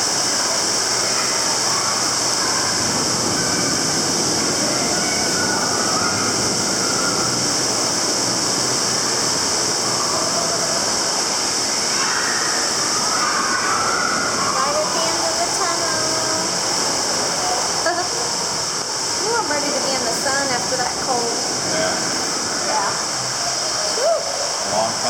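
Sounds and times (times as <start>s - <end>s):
water rushing in tunnel: 0.0s - 25.0s.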